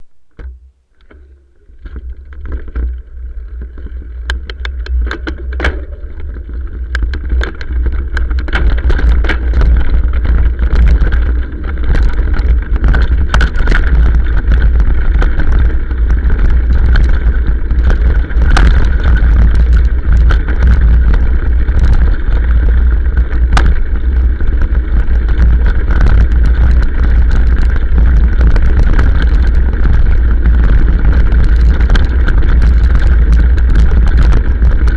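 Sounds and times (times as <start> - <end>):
motorcycle riding: 0.0 - 34.9
wind rumble on microphone: 0.0 - 34.9
sharp knocks and rattles: 0.3 - 34.9.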